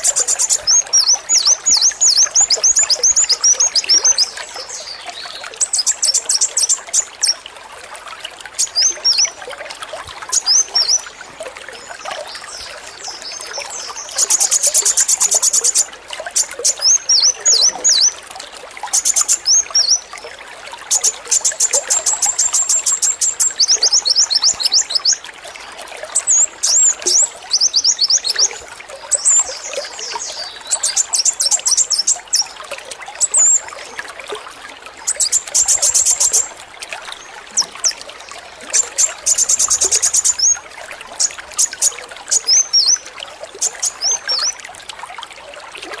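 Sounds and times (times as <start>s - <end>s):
sunbird chirps and trills: 0.0s - 7.4s, 8.6s - 9.4s, 10.3s - 11.2s, 11.8s - 18.2s, 18.9s - 20.1s, 20.9s - 25.2s, 26.2s - 32.6s, 38.7s - 40.6s, 41.2s - 44.6s
running water trickling: 0.0s - 46.0s.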